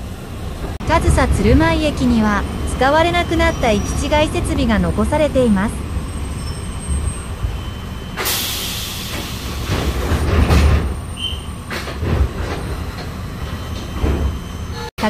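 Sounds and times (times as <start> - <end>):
railcar engine and wheel rumble: 0.0 - 15.0
burst of hiss: 8.2 - 9.9
wheels knocking on track: 8.2 - 14.8.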